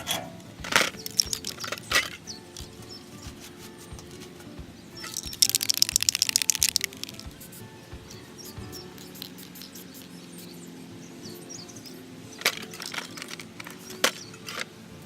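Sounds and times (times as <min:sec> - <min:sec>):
sharp cracks of hand tools: 0:05.0 - 0:07.2.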